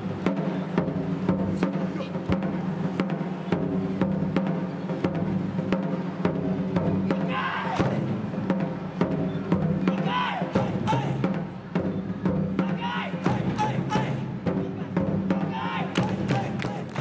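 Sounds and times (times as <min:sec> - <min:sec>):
drum ensemble playing: 0:00.0 - 0:17.0
short shouted calls: 0:07.2 - 0:08.0, 0:09.8 - 0:11.2, 0:12.6 - 0:14.3, 0:15.4 - 0:17.0.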